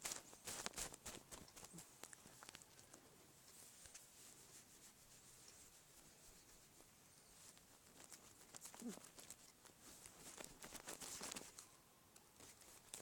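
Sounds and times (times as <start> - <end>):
faint rustling and clicking: 0.0 - 13.0.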